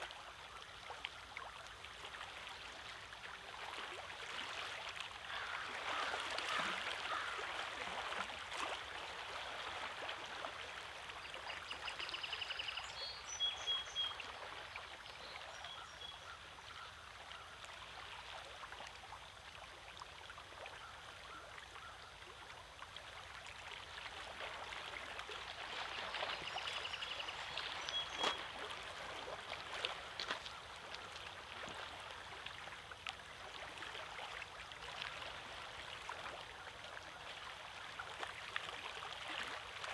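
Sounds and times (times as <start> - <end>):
small waves lapping on rocks: 0.0 - 12.0, 22.5 - 39.9
faint sharp splash: 3.6 - 12.4, 23.2 - 39.9.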